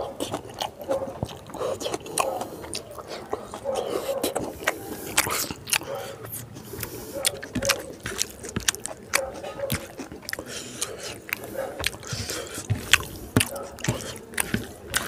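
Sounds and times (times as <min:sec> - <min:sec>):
person chewing food: 0:00.0 - 0:15.0
wet mouth clicks: 0:00.0 - 0:15.0.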